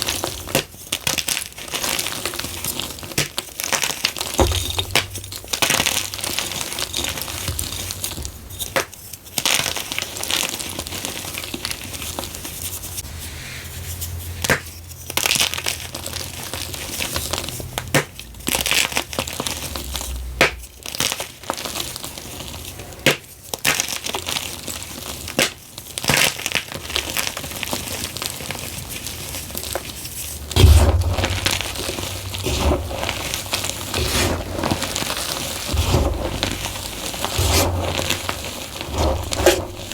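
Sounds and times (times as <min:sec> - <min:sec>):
chalk crunching in a bowl: 0:28.6 - 0:39.9.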